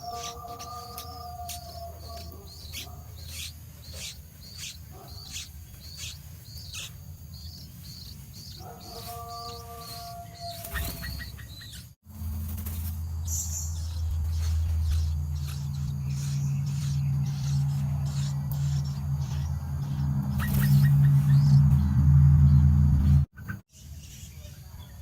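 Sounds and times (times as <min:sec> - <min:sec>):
bird chirping: 0:00.0 - 0:25.0
held droning tone: 0:12.1 - 0:23.3
loud low steady drone: 0:12.2 - 0:23.3.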